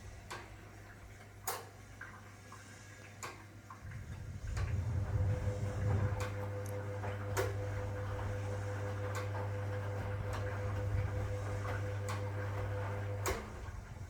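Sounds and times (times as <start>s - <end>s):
washing machine motor humming: 3.2s - 14.0s
washing machine sharp click: 9.0s - 13.7s.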